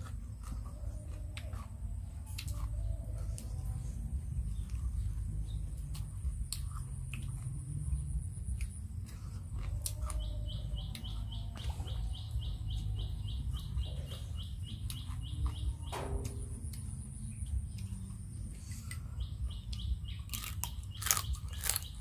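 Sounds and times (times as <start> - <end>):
bird chirping: 0.0 - 22.0
low rumble: 0.0 - 22.0
person chewing and breaking crab: 0.0 - 22.0.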